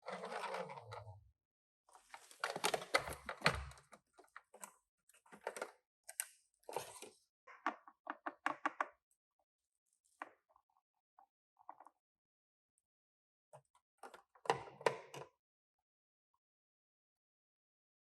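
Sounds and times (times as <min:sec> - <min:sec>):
toys and packaging clicks and taps: 0:02.2 - 0:09.0.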